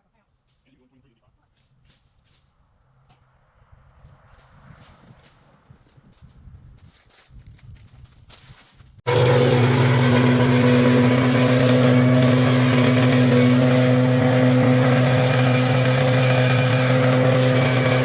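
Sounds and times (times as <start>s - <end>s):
engine running steadily: 9.1s - 18.0s.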